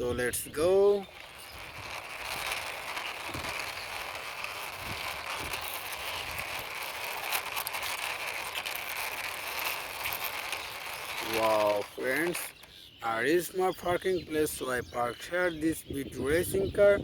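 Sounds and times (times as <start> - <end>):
toy car wheels rolling rattle: 0.0 - 12.8.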